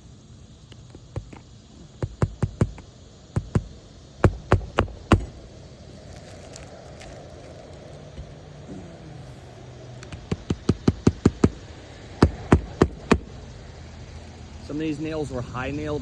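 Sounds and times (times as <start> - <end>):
hammer driving nails: 10.0 - 11.6, 12.2 - 13.3.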